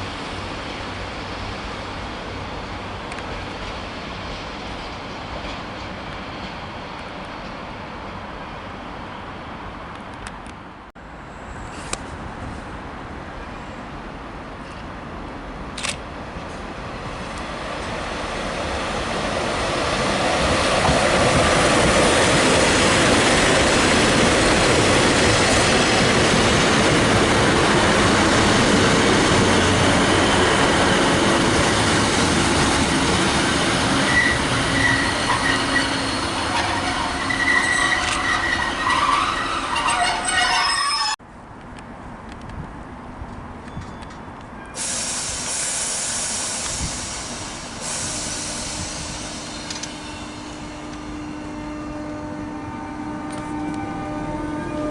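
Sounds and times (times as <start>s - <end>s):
train rumbling past: 11.0s - 41.2s, 44.8s - 54.9s
high-pitched metallic squealing: 33.3s - 41.2s.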